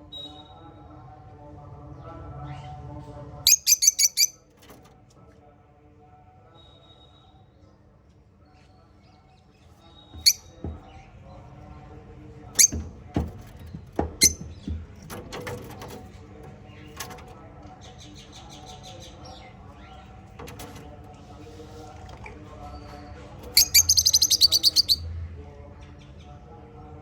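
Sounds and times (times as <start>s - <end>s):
parrot chattering trill: 3.5s - 4.4s, 23.6s - 25.0s
parrots clicking and knocking: 12.6s - 17.4s, 20.3s - 21.0s.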